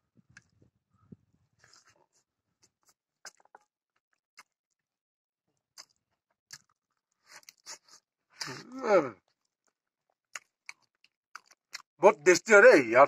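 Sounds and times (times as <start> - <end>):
wet chewing clicks and smacks: 1.6 - 4.9, 5.5 - 8.6, 9.3 - 12.0.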